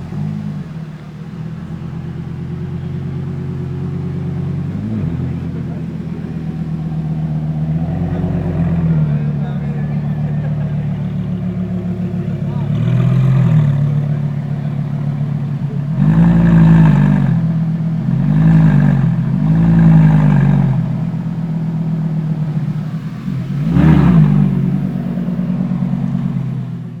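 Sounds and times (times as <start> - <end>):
engine revving: 0.0 - 27.0
sports car engine idling loudly: 0.0 - 27.0.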